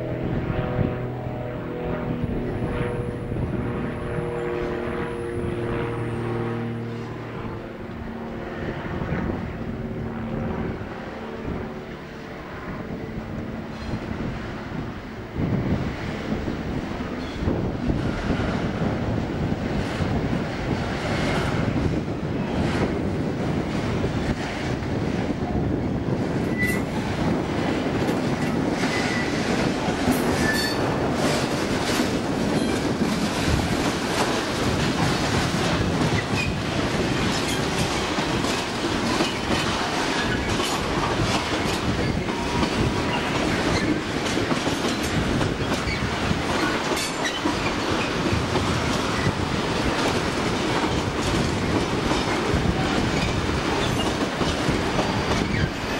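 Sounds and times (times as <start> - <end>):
freight train rumbling past: 0.0 - 55.9
train wheel squeals: 17.2 - 17.6, 26.5 - 26.9, 28.8 - 29.4, 30.3 - 30.9, 36.1 - 36.6, 41.6 - 48.2, 53.0 - 55.9.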